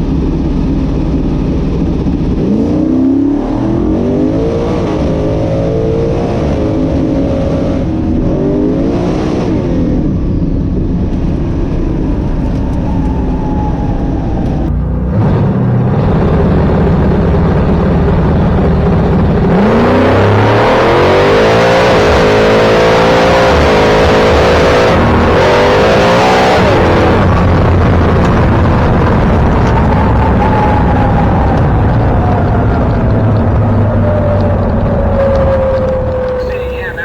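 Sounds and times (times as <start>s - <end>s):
drag race car engine revving: 14.6s - 37.0s.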